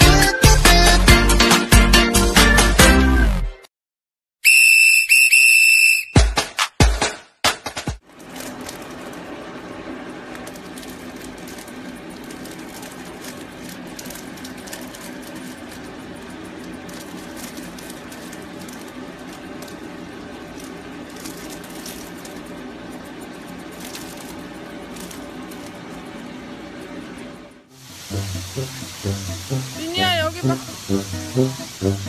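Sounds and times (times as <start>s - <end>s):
electric hair clippers buzzing: 28.1s - 32.0s.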